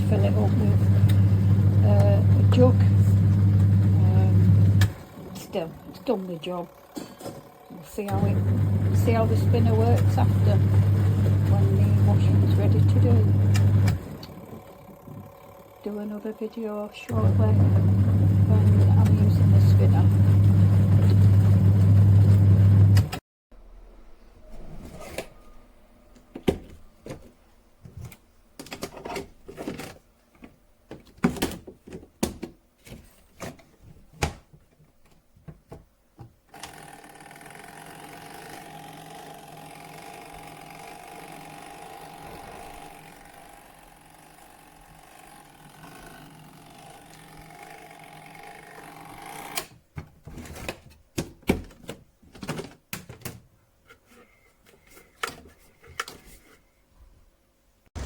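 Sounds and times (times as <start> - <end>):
washing machine motor hum: 0.0 - 23.2, 36.6 - 49.7.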